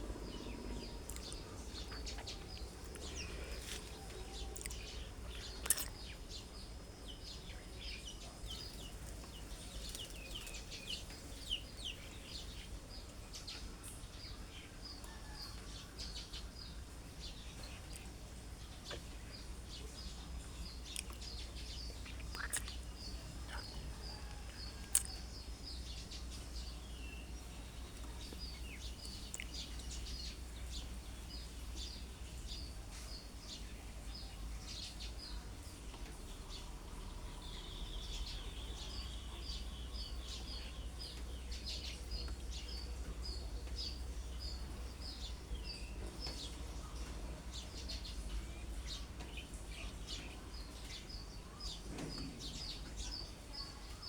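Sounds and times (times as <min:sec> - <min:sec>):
low background rumble: 0:00.0 - 0:14.9
small bird calling: 0:22.0 - 0:23.8.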